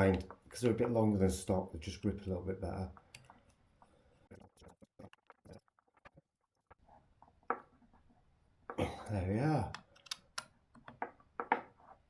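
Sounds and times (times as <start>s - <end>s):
screwdriver clicks on screws: 9.7s - 10.5s.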